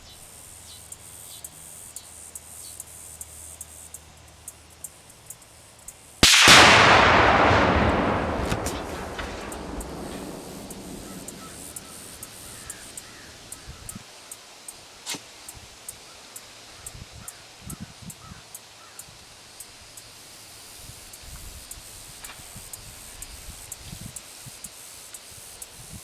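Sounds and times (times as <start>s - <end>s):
explosion blast: 6.2s - 13.5s
booming rumble: 6.2s - 13.6s.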